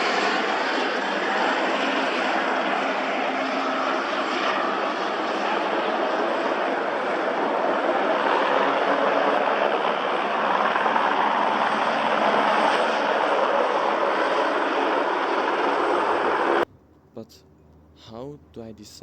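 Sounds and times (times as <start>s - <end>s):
aircraft engine noise: 0.0s - 19.0s.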